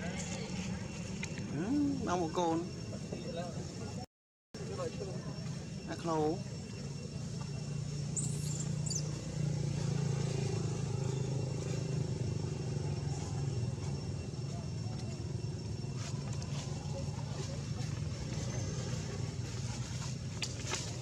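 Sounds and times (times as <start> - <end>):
low engine hum: 5.3 - 21.0.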